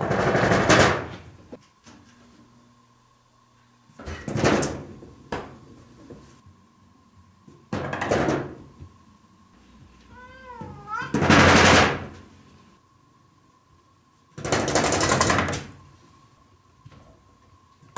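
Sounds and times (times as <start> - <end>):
cat meowing: 10.1 - 11.3.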